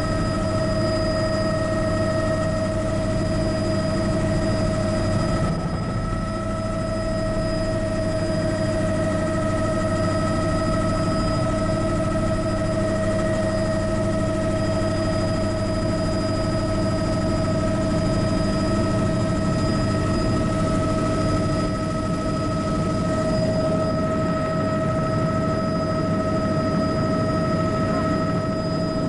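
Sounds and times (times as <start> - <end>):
helicopter drone: 0.0 - 29.0
high engine whine: 0.0 - 29.0.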